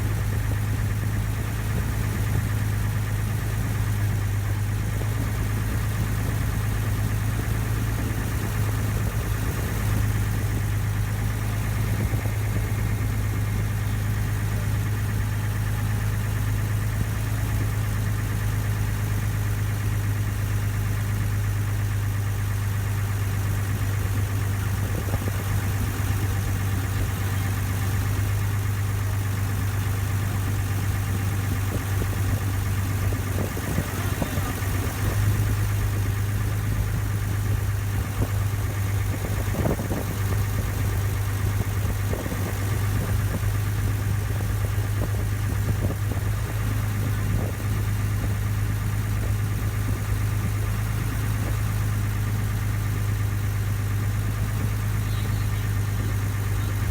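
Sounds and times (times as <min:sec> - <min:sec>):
ferry engine humming: 0:00.0 - 0:56.9.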